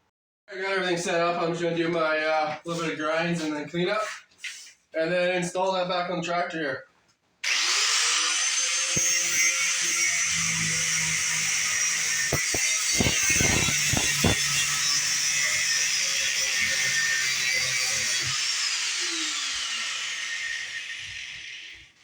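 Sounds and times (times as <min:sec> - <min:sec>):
angle grinder grinding metal: 0:07.4 - 0:22.0.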